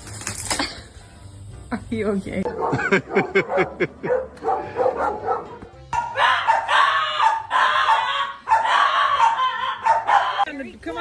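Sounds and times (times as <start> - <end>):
background music: 0.0 - 11.0
dog barking: 2.5 - 10.5.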